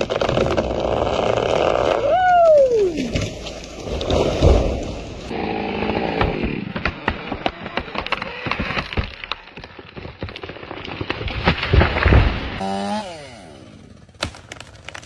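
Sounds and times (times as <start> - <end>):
wood cracking and snapping: 0.0 - 12.6, 14.1 - 15.0
chainsaw running: 12.6 - 15.0.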